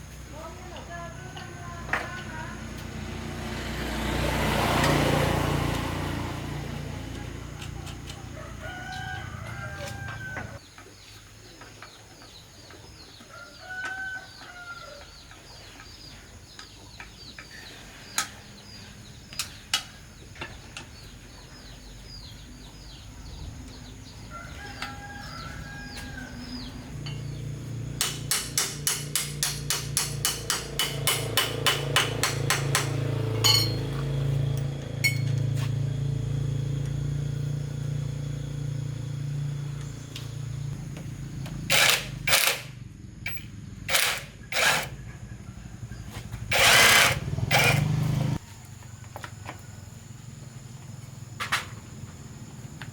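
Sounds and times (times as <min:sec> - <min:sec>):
small birds chirping: 0:06.6 - 0:28.4, 0:33.4 - 0:41.8
rooster crowing: 0:08.0 - 0:10.6, 0:13.3 - 0:15.2, 0:23.8 - 0:27.0
hammer strikes: 0:28.0 - 0:34.1.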